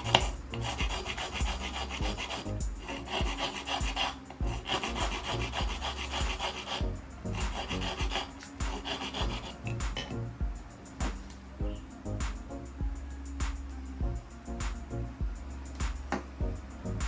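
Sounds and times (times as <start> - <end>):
hand file rasping: 0.0 - 10.1
low background music: 0.0 - 17.0.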